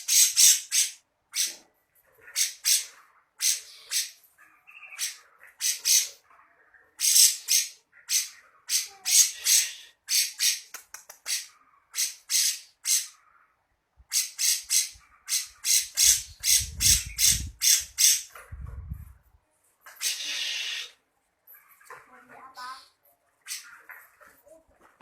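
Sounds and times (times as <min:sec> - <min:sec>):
bird giving harsh rasping calls: 0:00.0 - 0:01.6, 0:02.2 - 0:06.2, 0:07.0 - 0:13.4, 0:14.1 - 0:18.3, 0:20.0 - 0:21.0.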